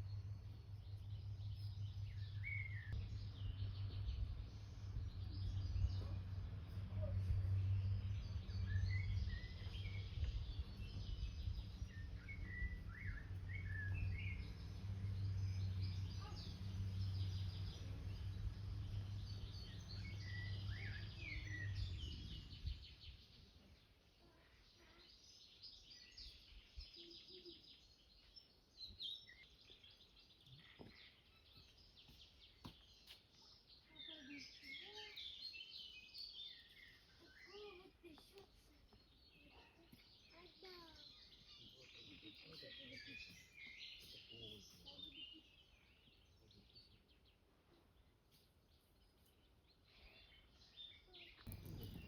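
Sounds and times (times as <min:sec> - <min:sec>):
low rumble: 0:00.0 - 0:23.2
small birds chirping: 0:00.0 - 0:52.0.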